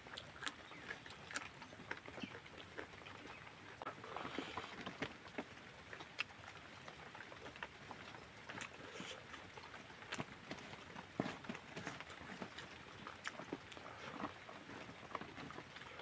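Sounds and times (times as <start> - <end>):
wet chewing smacks: 0.1 - 16.0.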